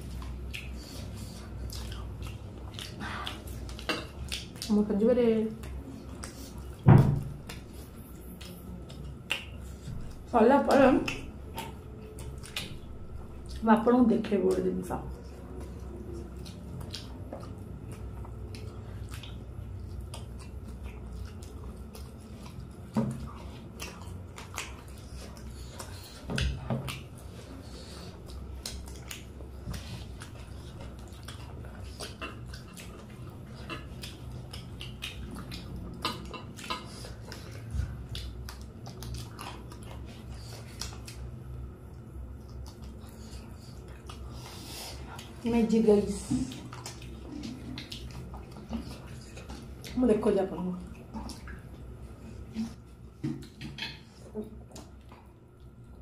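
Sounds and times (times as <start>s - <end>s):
people biting and chewing: 0.0s - 4.8s, 5.6s - 13.7s, 14.5s - 45.5s, 46.1s - 50.0s.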